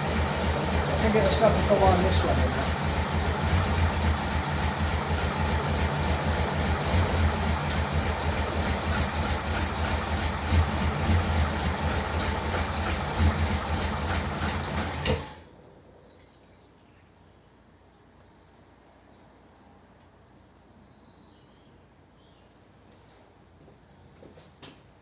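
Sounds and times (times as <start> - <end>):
car engine idling unevenly: 0.0 - 15.5.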